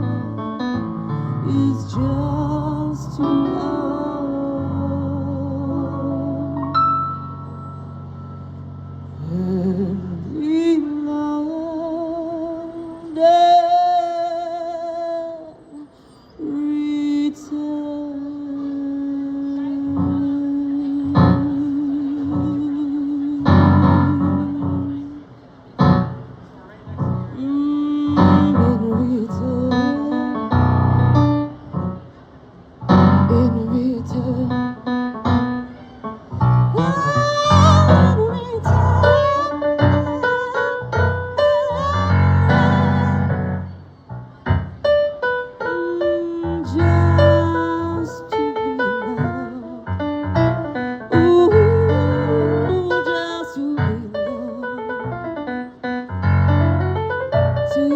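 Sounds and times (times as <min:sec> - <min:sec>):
piano playing slow chords: 0:00.0 - 0:14.6, 0:17.8 - 0:57.9
person singing wordless notes: 0:01.4 - 0:07.0, 0:08.0 - 0:15.6, 0:16.4 - 0:25.3, 0:27.3 - 0:31.2, 0:33.2 - 0:35.4, 0:36.5 - 0:43.6, 0:45.6 - 0:50.0, 0:50.8 - 0:55.2, 0:57.7 - 0:57.9.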